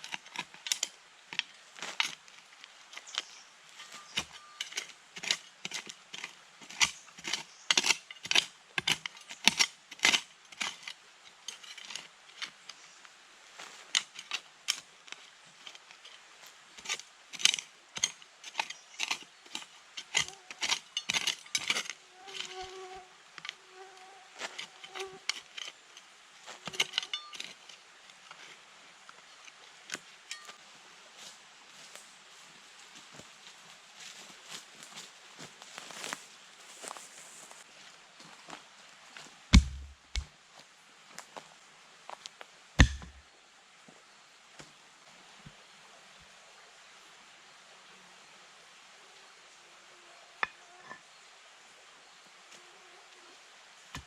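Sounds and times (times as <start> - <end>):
objects clicking and knocking: 16.8 - 22.7, 26.6 - 28.5, 39.6 - 40.3, 42.8 - 43.2
insect buzzing: 22.0 - 25.3.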